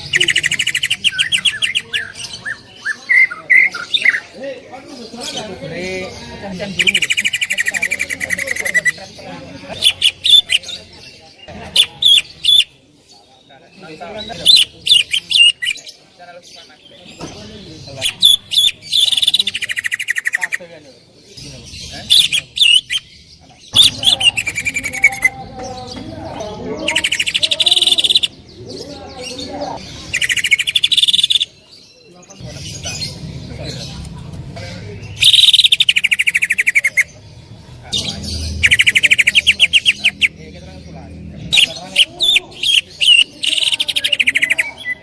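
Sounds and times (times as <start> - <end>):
bird singing trills and whistles: 0.0 - 4.3, 6.8 - 9.0, 9.8 - 10.9, 11.7 - 12.8, 14.3 - 16.0, 18.0 - 20.6, 21.9 - 25.4, 26.8 - 29.2, 30.0 - 32.0, 35.1 - 37.2, 38.0 - 40.4, 41.4 - 45.0.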